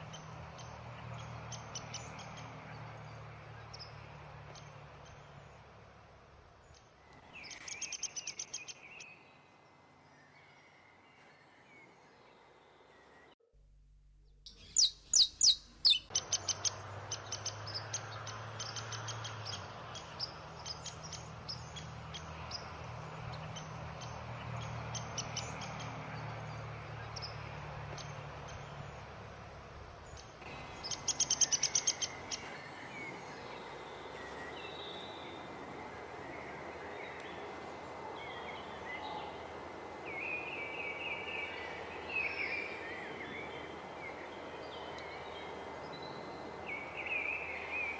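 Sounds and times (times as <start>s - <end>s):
wild birds chirping and singing: 0.0s - 5.8s, 6.6s - 13.4s, 14.5s - 47.9s
steady background hiss: 14.6s - 47.9s.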